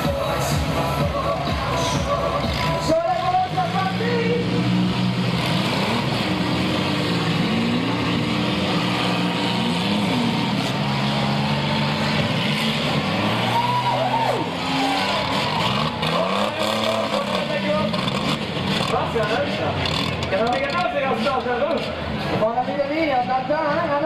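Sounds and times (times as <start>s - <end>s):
car engines revving: 0.0s - 24.0s.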